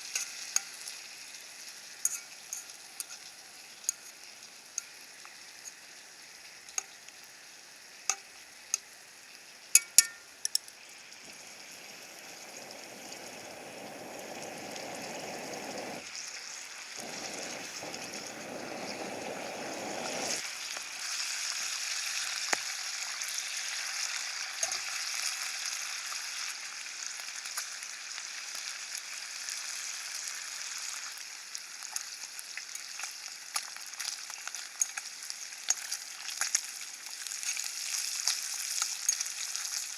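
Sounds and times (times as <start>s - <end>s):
food sizzling in a frying pan: 0.0s - 39.9s
dull rushing sound: 11.3s - 16.0s, 17.0s - 20.4s.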